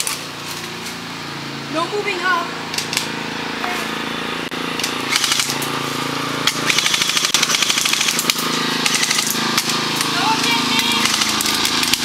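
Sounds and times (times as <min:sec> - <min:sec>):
airsoft guns firing: 0:05.1 - 0:05.6, 0:06.4 - 0:09.7, 0:10.7 - 0:12.0.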